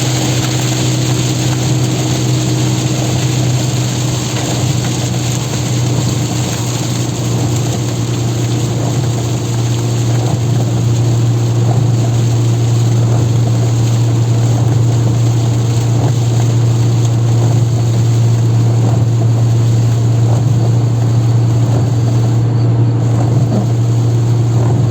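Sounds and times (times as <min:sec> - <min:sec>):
engine and road drone: 0:00.0 - 0:24.9
rain and tyre spray hiss: 0:00.0 - 0:24.9.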